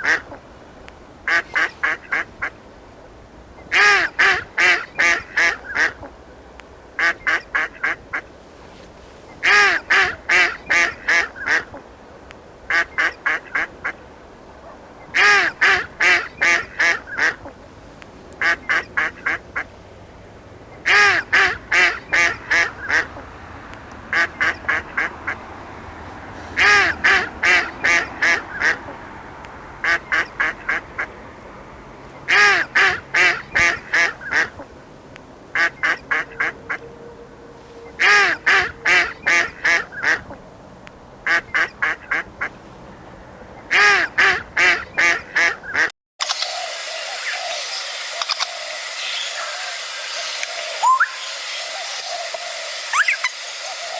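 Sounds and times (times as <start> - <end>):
duck quacking: 0.0 - 0.4, 1.3 - 2.6, 3.7 - 6.1, 7.0 - 8.3, 9.4 - 11.8, 12.7 - 14.0, 15.1 - 17.6, 18.4 - 19.7, 20.8 - 23.3, 24.1 - 25.4, 26.6 - 29.0, 29.8 - 31.1, 32.3 - 34.7, 35.5 - 36.8, 37.9 - 40.4, 41.2 - 42.5, 43.7 - 45.9.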